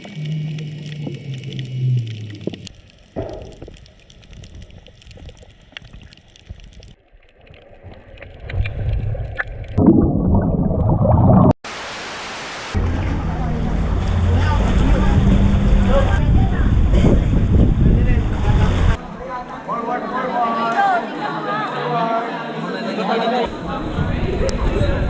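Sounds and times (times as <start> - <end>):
water bubbling and gurgling: 0.0 - 11.6.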